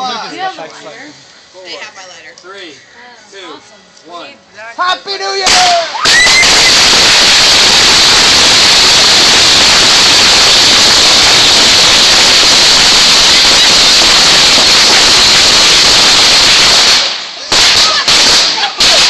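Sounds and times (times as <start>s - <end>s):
fireworks hissing: 5.4s - 19.0s.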